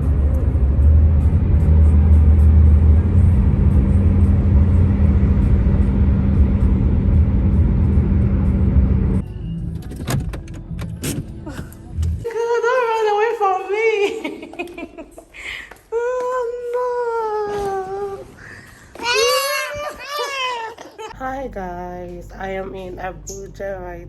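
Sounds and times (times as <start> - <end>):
vehicle rumble: 0.0 - 12.3
music: 9.0 - 12.3.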